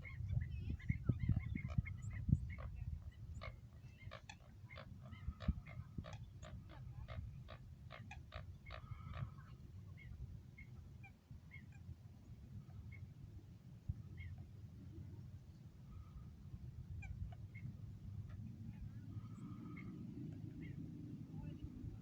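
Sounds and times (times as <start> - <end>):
steady low rumble: 13.9 - 22.0.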